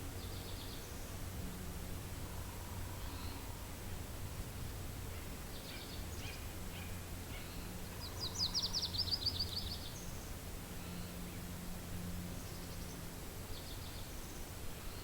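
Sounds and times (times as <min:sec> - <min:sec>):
low wind noise: 0:00.0 - 0:15.0
small birds chirping: 0:00.2 - 0:01.2, 0:05.1 - 0:11.5, 0:12.4 - 0:15.0.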